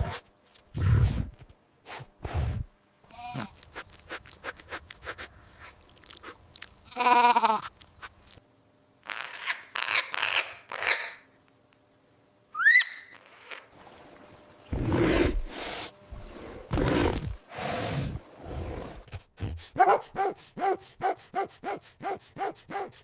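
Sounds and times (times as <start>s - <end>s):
crunching clicks like chewing: 3.4s - 6.8s
sheep bleating: 6.9s - 7.7s.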